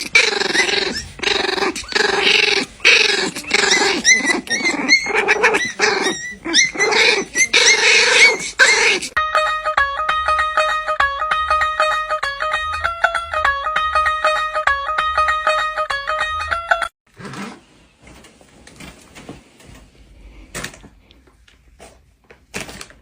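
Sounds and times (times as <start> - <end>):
dog growling and snarling: 0.0 - 9.2, 17.1 - 17.6
dog squeaking: 0.0 - 9.2
plucked guitar music: 9.2 - 16.9.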